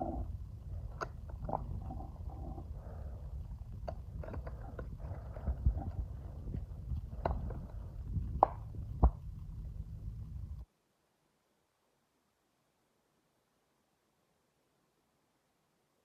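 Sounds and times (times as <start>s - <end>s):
car driveline rumbling drone: 0.0s - 10.6s.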